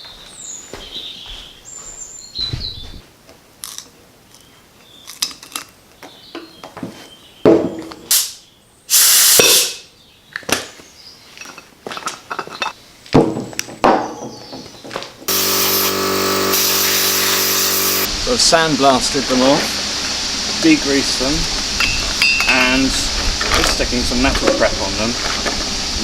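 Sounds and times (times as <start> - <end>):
birds chirping: 0.0 - 3.0
spraying hiss: 8.9 - 9.6, 15.3 - 19.4.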